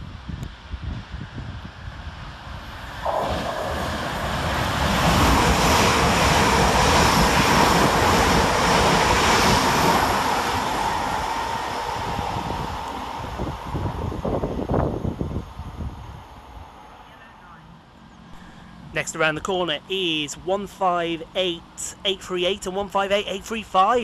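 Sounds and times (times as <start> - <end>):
electric train high whine: 0.0 - 22.9.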